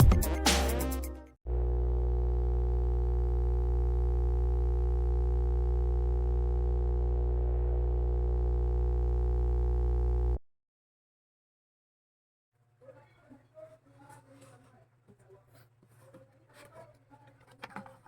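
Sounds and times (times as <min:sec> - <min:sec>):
electronic hum: 0:01.5 - 0:10.4.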